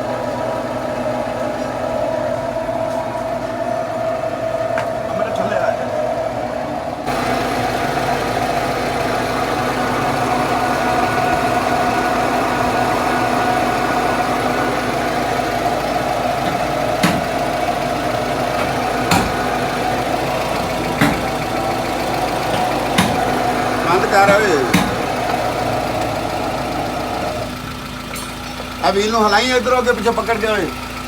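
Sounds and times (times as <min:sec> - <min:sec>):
car engine idling: 0:00.0 - 0:31.0
short sharp knocks: 0:16.4 - 0:17.4, 0:20.5 - 0:21.4, 0:22.5 - 0:23.4, 0:24.3 - 0:25.4.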